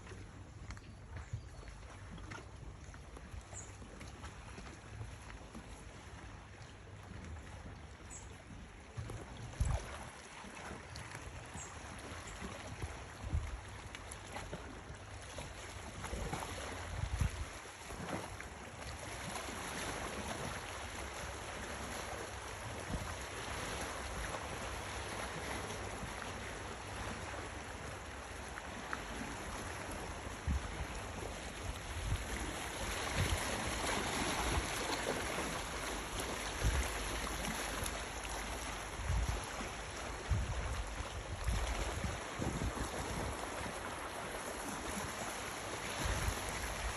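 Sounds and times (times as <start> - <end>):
wind: 0.0 - 46.9
sea rushing: 9.5 - 46.9
wind buffeting microphone: 16.9 - 17.6, 30.0 - 34.8, 36.5 - 37.6, 38.9 - 43.8.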